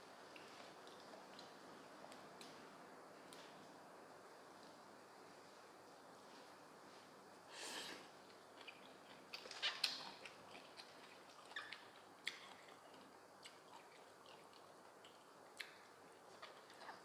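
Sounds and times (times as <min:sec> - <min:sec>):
person chewing: 0:07.8 - 0:17.0.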